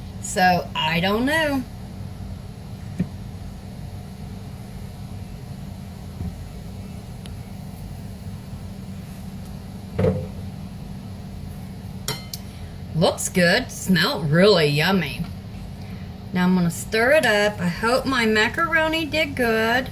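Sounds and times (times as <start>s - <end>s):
steady low hum: 0.0s - 19.9s
plastic lid knock: 10.0s - 10.3s.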